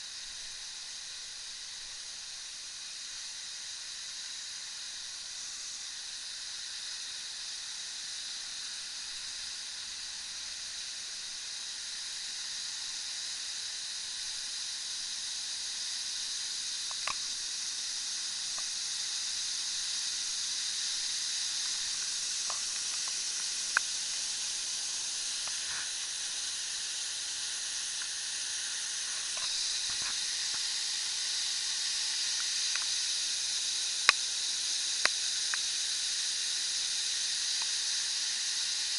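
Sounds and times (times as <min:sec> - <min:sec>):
faint clicks: 0:16.8 - 0:17.2, 0:21.6 - 0:24.2, 0:32.3 - 0:33.0.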